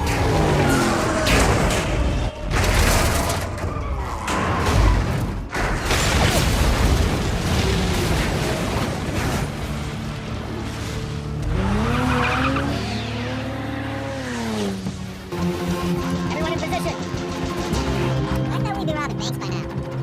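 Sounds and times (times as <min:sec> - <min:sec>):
car engine: 0:00.0 - 0:04.3, 0:07.1 - 0:18.6
film score: 0:00.0 - 0:20.0
tyres skidding: 0:07.2 - 0:18.6.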